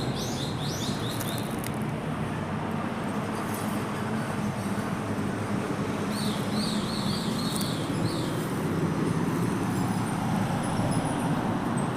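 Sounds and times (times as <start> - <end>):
bird chirping: 0.0 - 1.6, 6.1 - 8.4
road traffic rumble: 0.0 - 11.9.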